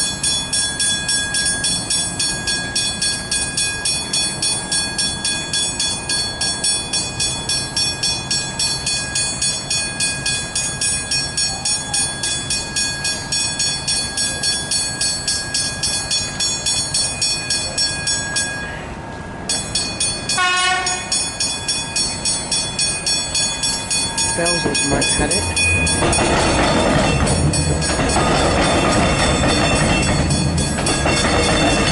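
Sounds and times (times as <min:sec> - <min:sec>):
level crossing bells ringing: 0:00.0 - 0:31.9
train horn blast: 0:20.4 - 0:21.1.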